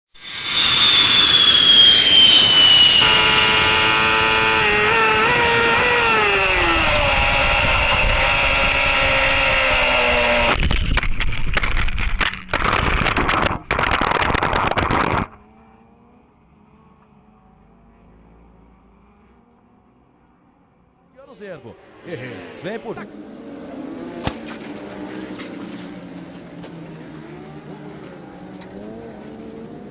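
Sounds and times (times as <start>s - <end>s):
motorcycle engines revving: 3.0s - 10.6s, 13.8s - 29.9s.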